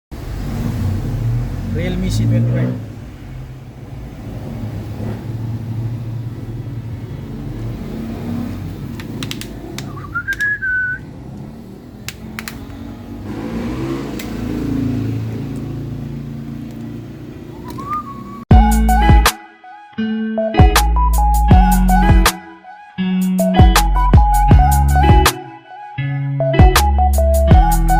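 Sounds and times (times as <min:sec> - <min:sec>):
clicks: 0:08.9 - 0:10.7, 0:11.3 - 0:12.9, 0:14.1 - 0:14.4, 0:17.6 - 0:18.1
short rising whistle: 0:09.9 - 0:11.1, 0:17.5 - 0:18.5
loud music: 0:18.5 - 0:27.9.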